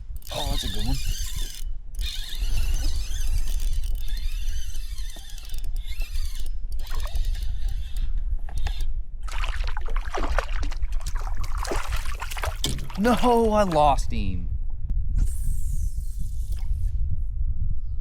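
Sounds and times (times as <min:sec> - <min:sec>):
wind rumble on microphone: 0:00.0 - 0:18.0
water splashing around kayak: 0:09.2 - 0:13.8.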